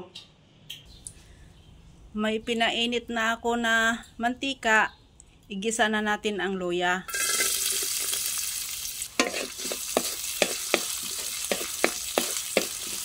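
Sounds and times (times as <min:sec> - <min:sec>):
ginger sizzling in hot oil: 0:07.1 - 0:13.0
wooden spatula scraping pan: 0:09.2 - 0:13.0.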